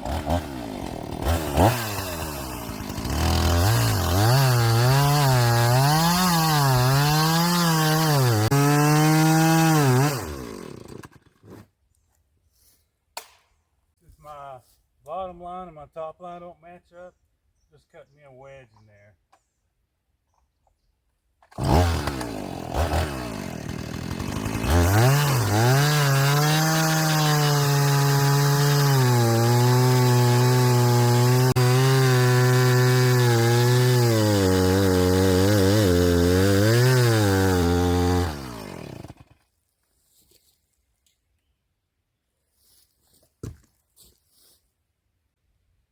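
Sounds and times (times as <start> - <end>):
chainsaw cutting log: 0.0 - 11.7, 21.4 - 39.5.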